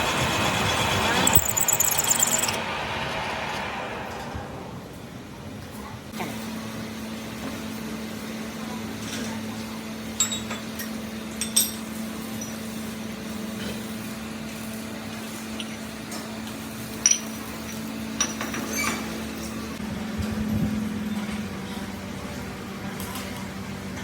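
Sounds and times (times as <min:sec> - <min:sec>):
metal clinking and tapping: 0:01.3 - 0:02.6.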